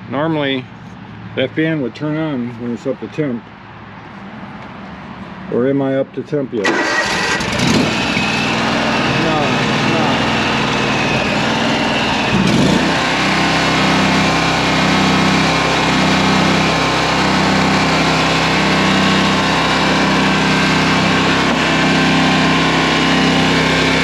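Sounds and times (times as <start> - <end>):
mower engine idling: 6.6 - 24.0.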